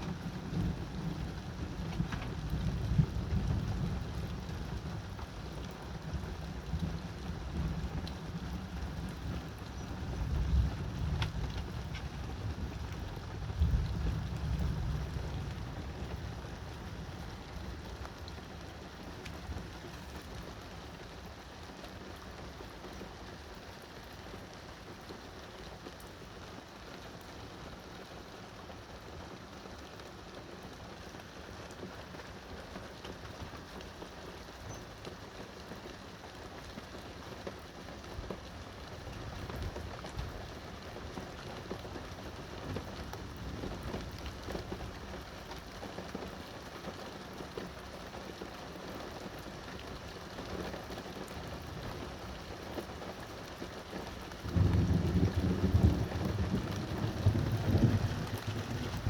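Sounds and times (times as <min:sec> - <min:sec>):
steady rain hiss: 0:00.0 - 0:59.0
raindrop clicks: 0:01.8 - 0:04.2, 0:08.8 - 0:20.8.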